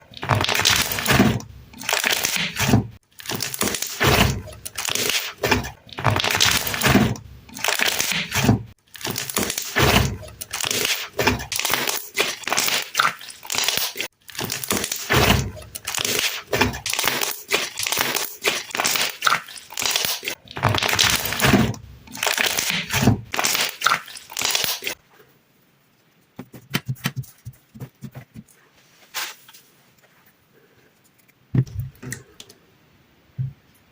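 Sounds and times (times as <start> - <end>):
slime crackling and popping: 0.1 - 25.0.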